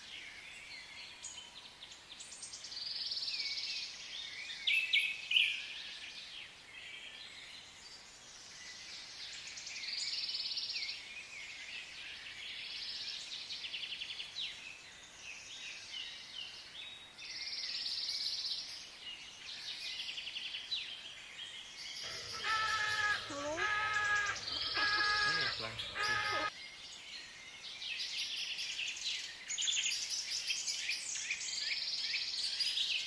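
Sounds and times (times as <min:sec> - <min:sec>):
small birds chirping and trilling: 0:21.6 - 0:27.7.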